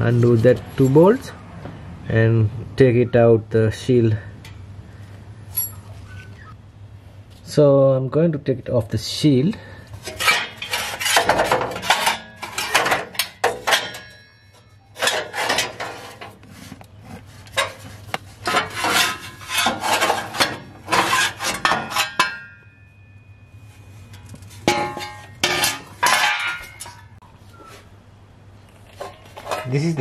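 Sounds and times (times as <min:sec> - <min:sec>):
metal clanking and scraping: 0:09.9 - 0:27.2, 0:28.7 - 0:30.0
ringing of struck metal: 0:21.9 - 0:23.8.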